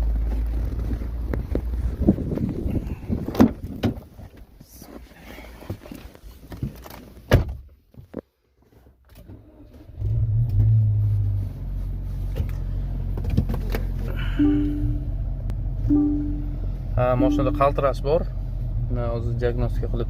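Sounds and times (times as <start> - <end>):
car engine starting and misfiring: 9.0 - 19.3
dashboard chime beep: 14.3 - 15.2, 15.9 - 17.9.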